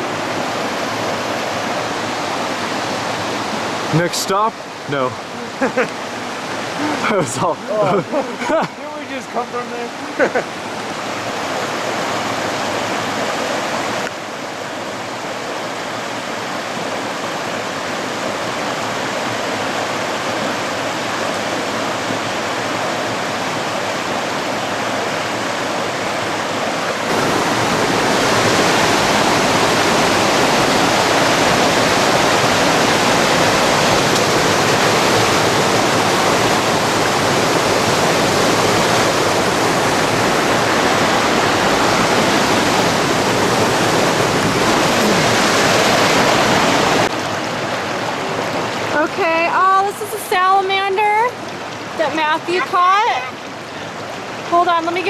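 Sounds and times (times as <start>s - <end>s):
flowing river water: 0.0s - 55.0s.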